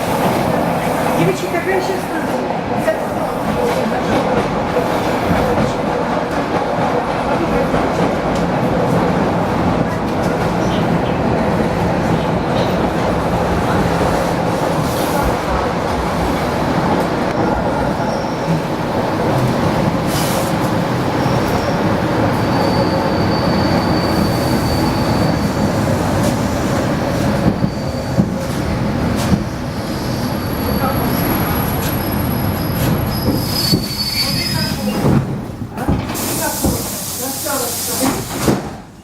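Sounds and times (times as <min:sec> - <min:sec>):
train rumbling on rails: 0:00.0 - 0:39.0
faint high wheel squeal: 0:21.5 - 0:25.6, 0:27.5 - 0:28.2, 0:30.0 - 0:35.0.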